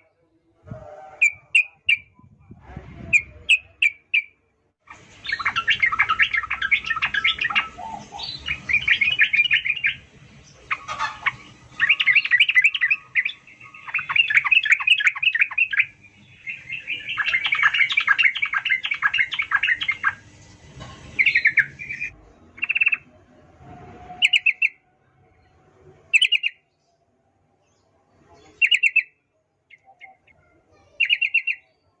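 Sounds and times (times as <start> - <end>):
bird singing rapid chattering notes: 3.2 - 20.2, 21.2 - 23.0, 28.6 - 31.9.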